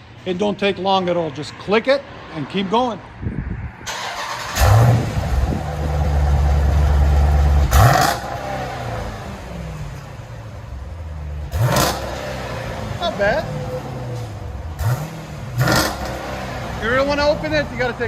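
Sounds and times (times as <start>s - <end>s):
car engine starting and idling: 3.8s - 18.0s
engine revs blipped: 3.9s - 18.0s.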